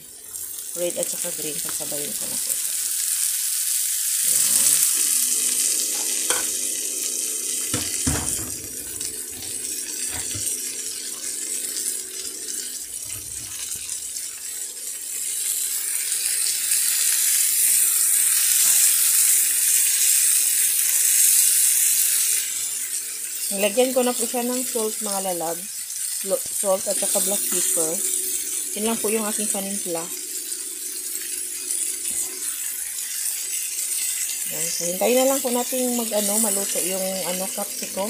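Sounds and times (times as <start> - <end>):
peppers sizzling in a frying pan: 0.0 - 38.0
wooden spatula knocking on pan: 7.7 - 8.6.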